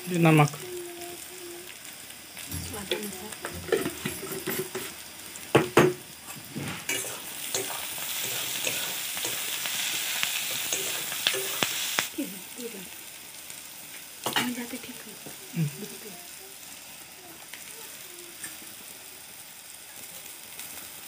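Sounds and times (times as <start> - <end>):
onions sizzling in oil: 0.0 - 21.0
spatula clanking on pan: 2.6 - 6.0, 6.9 - 9.5, 10.4 - 11.8.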